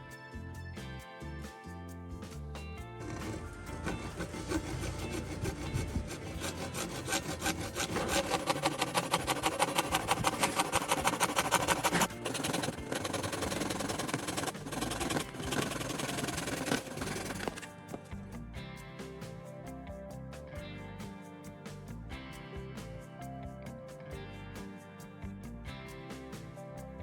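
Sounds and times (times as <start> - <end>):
hand tool scraping wood: 3.0 - 18.1.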